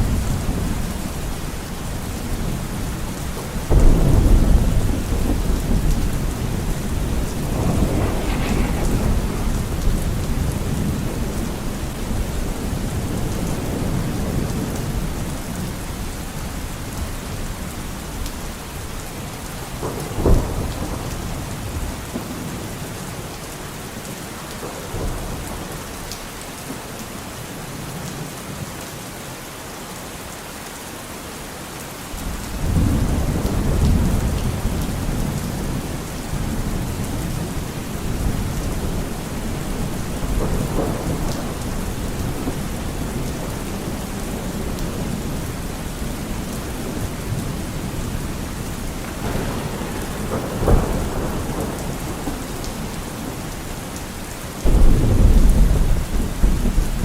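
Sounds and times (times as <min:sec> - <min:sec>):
thunder rumbling: 0:00.0 - 0:16.0, 0:32.2 - 0:57.0
steady rain: 0:00.0 - 0:57.0.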